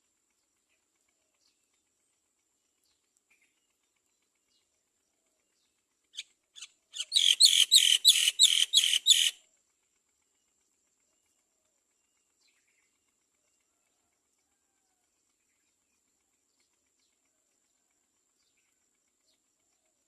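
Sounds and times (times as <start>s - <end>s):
myna harsh chirps: 7.0s - 9.4s.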